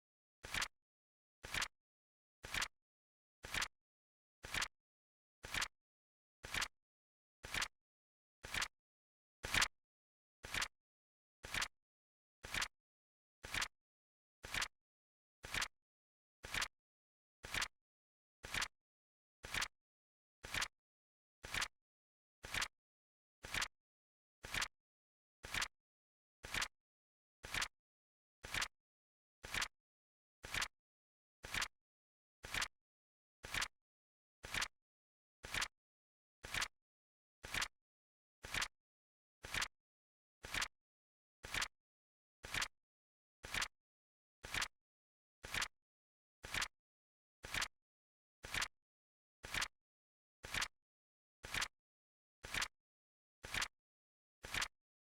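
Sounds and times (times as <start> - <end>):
flip clock timer ticking: 38.4 - 38.7, 39.5 - 39.7, 40.4 - 40.7, 42.5 - 42.7, 43.5 - 43.7, 44.5 - 44.7, 45.4 - 45.7, 46.4 - 46.7, 47.4 - 47.7, 48.4 - 48.7, 50.4 - 50.7, 51.4 - 51.7, 52.4 - 52.7, 53.4 - 53.7, 54.4 - 54.7.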